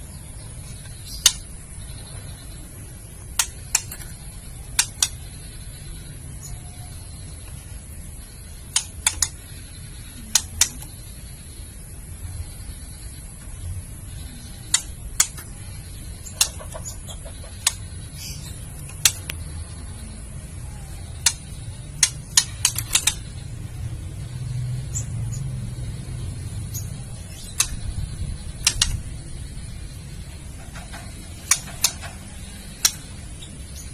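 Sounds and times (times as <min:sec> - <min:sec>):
steady low hum: 0:00.0 - 0:33.9
bird giving dry clicks: 0:00.8 - 0:01.5, 0:03.3 - 0:05.3, 0:08.7 - 0:10.9, 0:14.6 - 0:15.6, 0:16.2 - 0:19.4, 0:21.2 - 0:23.4, 0:27.3 - 0:29.1, 0:30.5 - 0:33.3.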